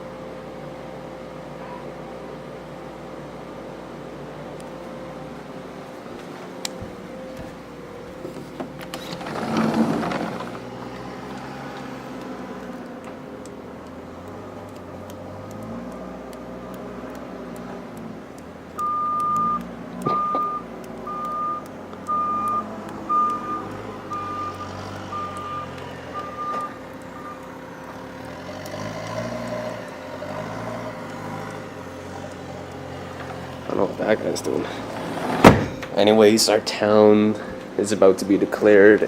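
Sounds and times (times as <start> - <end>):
truck engine running: 0.0 - 39.0
reversing alarm beeps: 18.8 - 27.9.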